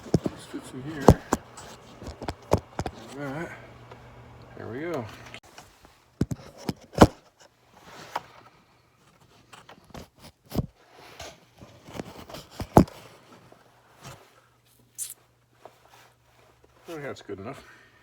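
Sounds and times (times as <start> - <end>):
faint steady hum: 0.0 - 5.4.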